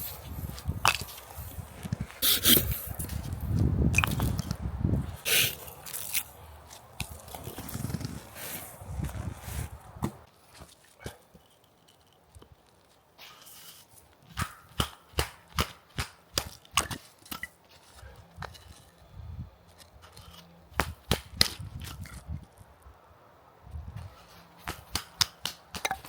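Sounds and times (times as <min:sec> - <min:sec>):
firewood being chopped: 0:00.5 - 0:01.3, 0:14.3 - 0:17.5, 0:20.0 - 0:22.2, 0:24.6 - 0:26.0.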